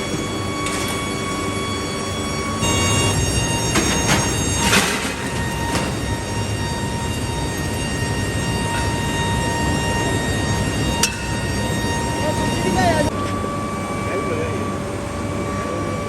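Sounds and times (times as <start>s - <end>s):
factory machinery humming: 0.0s - 16.0s.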